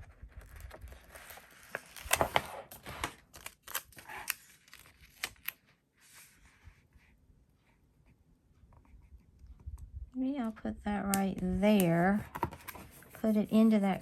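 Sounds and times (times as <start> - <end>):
sticker sheets clicking and rustling: 11.0 - 14.0.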